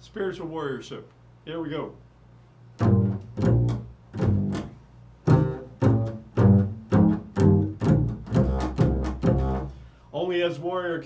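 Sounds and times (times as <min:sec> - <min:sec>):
plucked bass notes: 0:02.8 - 0:09.9.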